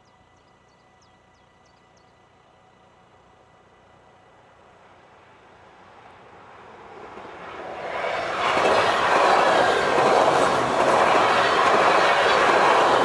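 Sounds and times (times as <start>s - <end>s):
train wheels rumbling on rails: 5.8s - 13.0s
wheels clacking over rail joints: 7.2s - 13.0s.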